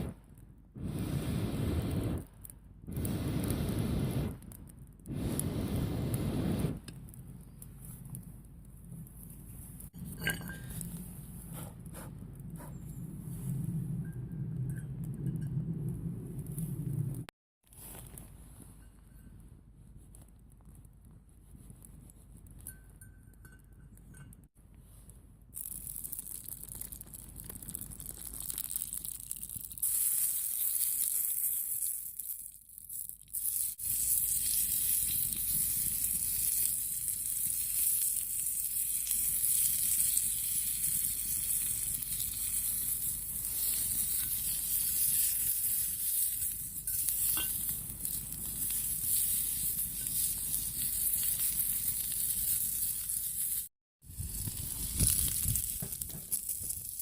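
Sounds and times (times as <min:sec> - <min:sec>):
food sizzling: 0:27.7 - 0:57.0.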